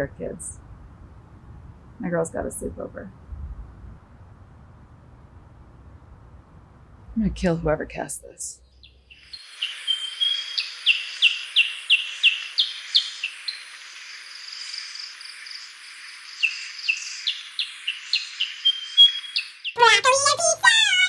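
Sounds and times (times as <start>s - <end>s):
songbirds chirping: 7.3s - 20.2s
steady hiss: 9.3s - 18.7s.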